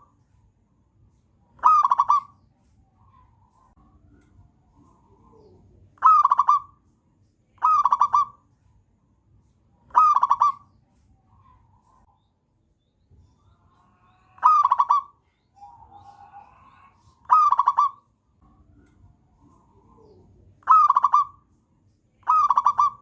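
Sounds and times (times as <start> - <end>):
dove cooing: 1.6 - 2.3, 4.8 - 6.8, 7.6 - 8.4, 9.9 - 10.6, 13.8 - 18.0, 19.4 - 21.4, 22.2 - 23.0.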